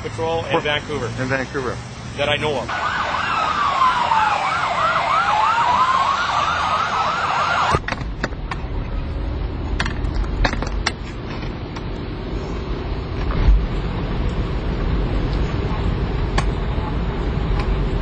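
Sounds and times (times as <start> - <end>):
police siren wail: 2.7 - 7.8
police siren yelp: 2.7 - 7.8.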